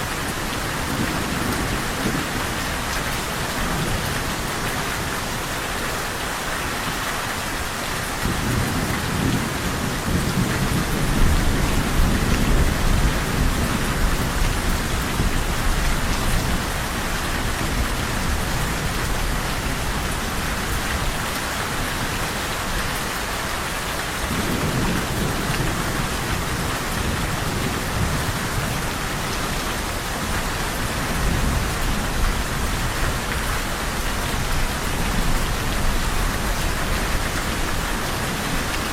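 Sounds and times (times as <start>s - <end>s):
steady rain falling: 0.0s - 38.9s
low rolling thunder: 8.2s - 20.0s.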